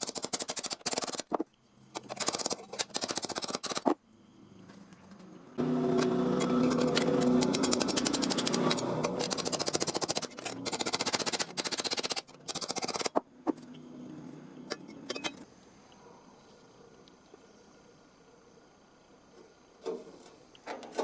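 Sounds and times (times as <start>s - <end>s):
power tool running: 5.6s - 13.1s.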